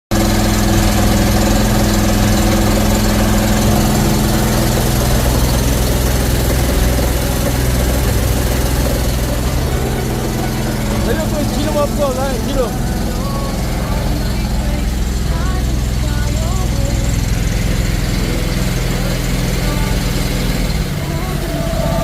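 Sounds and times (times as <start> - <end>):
pressure washer engine running: 0.1 - 22.0.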